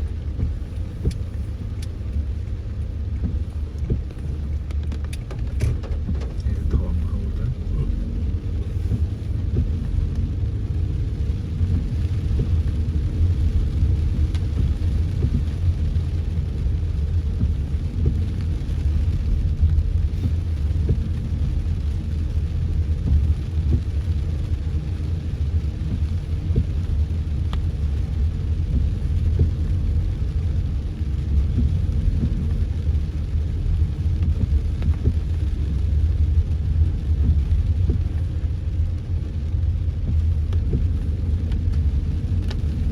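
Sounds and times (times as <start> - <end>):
car driving low rumble: 0.0 - 42.9
rain ticks: 0.0 - 42.9.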